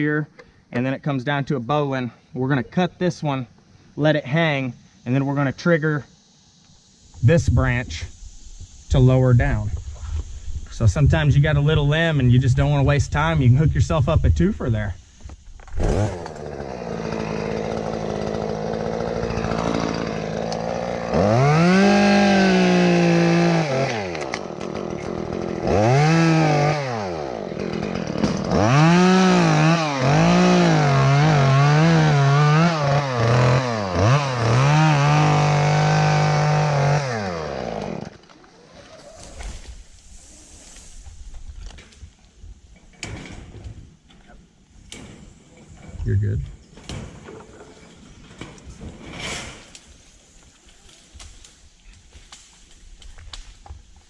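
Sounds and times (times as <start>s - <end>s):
chainsaw revving and cutting: 15.7s - 39.0s.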